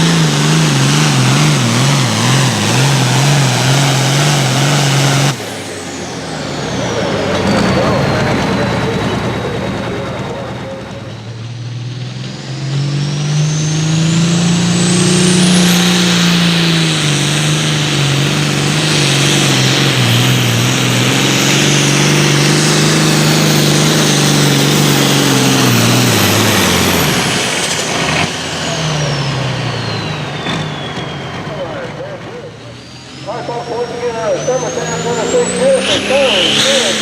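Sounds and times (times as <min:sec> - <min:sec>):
tractor engine under load: 0:00.0 - 0:37.0
high turbo whistle: 0:32.8 - 0:37.0.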